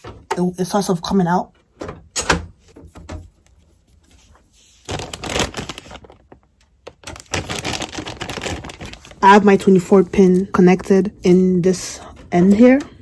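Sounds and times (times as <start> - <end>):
cables scraping and rustling: 2.9 - 13.0.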